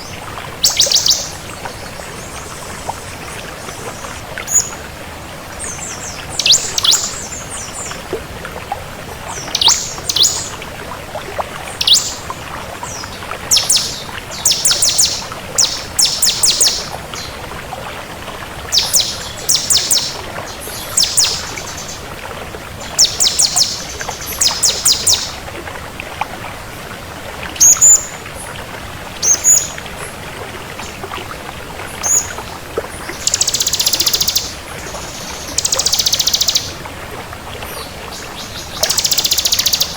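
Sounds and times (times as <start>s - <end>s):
bird chirping: 0.6s - 1.4s, 5.8s - 7.8s, 9.4s - 10.5s, 11.8s - 12.2s, 12.9s - 17.3s, 18.7s - 22.0s, 23.0s - 25.4s, 33.2s - 36.7s, 38.4s - 39.9s
buzzy bird trill: 33.2s - 34.5s, 35.6s - 36.7s, 38.8s - 39.9s.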